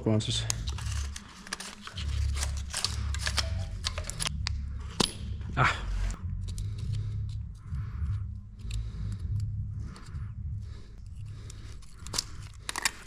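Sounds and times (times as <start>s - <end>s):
parts and tools scraping and rattling: 0.4s - 4.4s, 11.0s - 13.0s
low steady rumble: 2.0s - 12.7s.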